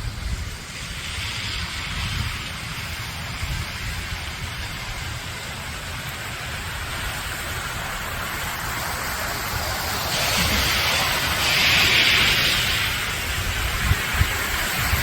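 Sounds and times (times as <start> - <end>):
wind rumble on microphone: 0.0 - 8.2, 9.4 - 15.0
rushing water hiss: 0.0 - 15.0.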